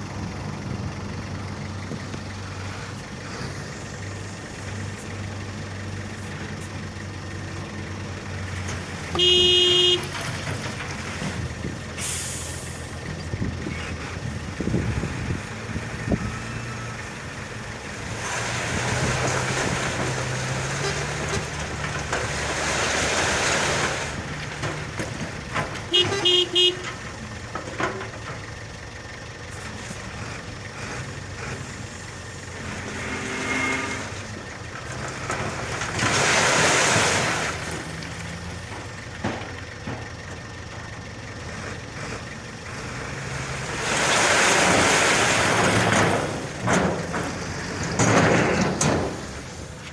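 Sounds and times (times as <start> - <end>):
truck engine running: 0.0 - 49.9
truck horn blast: 9.1 - 10.3, 25.9 - 27.1, 33.0 - 34.2
short horn toots: 9.2 - 10.2, 25.9 - 26.9.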